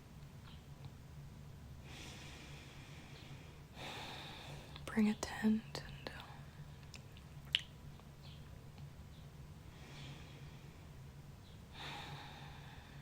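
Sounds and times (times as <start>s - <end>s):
faint low hum: 0.0s - 13.0s
soft breathing: 1.8s - 6.8s, 9.6s - 13.0s
person whispering: 4.8s - 6.4s.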